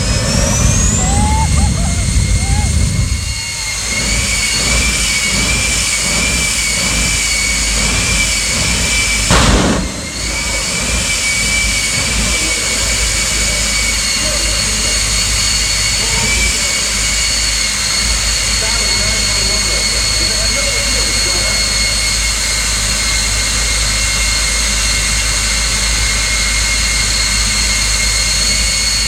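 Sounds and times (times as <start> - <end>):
loud rushing burst: 0.0 - 16.0
jet engine whine: 0.0 - 29.0.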